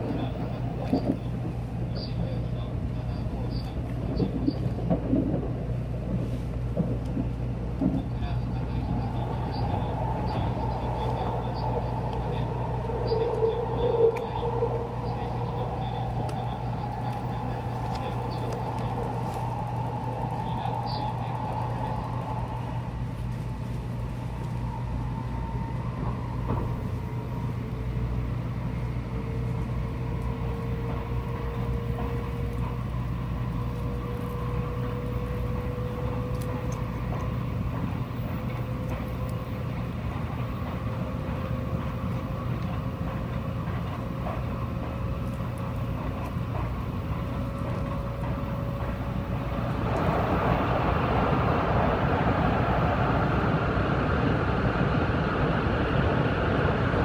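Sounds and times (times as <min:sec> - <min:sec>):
train cabin hum and rolling noise: 0:00.0 - 0:57.0.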